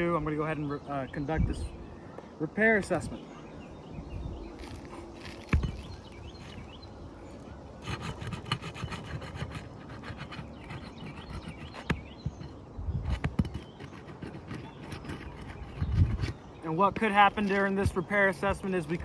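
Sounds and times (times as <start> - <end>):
roofing tool scraping shingles: 7.8 - 18.0.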